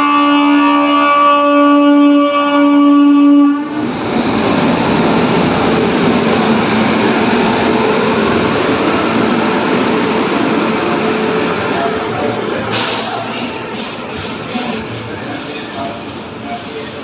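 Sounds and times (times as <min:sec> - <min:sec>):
train horn: 0:00.0 - 0:03.8
train rushing past: 0:03.1 - 0:17.0.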